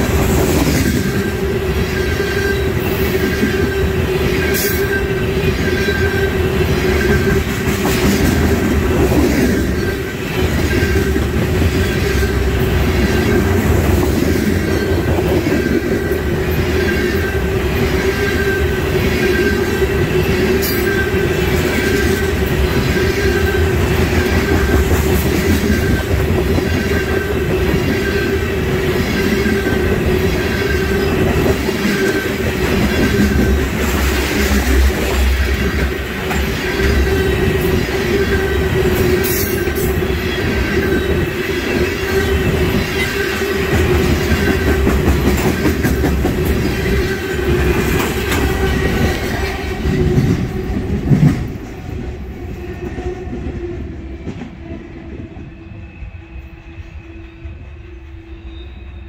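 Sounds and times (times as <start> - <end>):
freight train wheels rumbling: 0.0 - 59.0
short high wheel squeal: 55.6 - 59.0.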